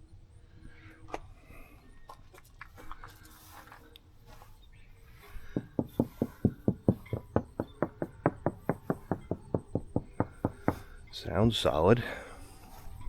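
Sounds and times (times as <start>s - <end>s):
rapid knocking on boat hull: 5.6s - 10.8s.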